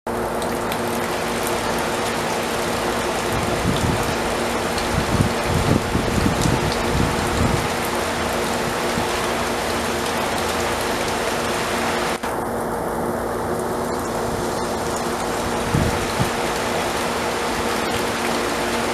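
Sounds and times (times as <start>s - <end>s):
heavy rain falling: 0.2s - 18.9s
wind buffeting microphone: 3.3s - 4.2s, 4.8s - 7.9s, 15.4s - 17.9s.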